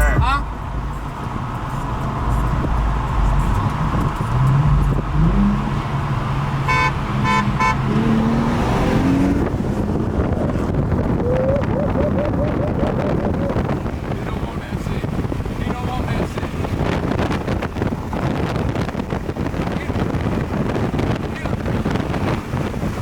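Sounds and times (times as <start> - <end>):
car engine accelerating: 0.0 - 23.0
car horn beeps: 6.7 - 7.9.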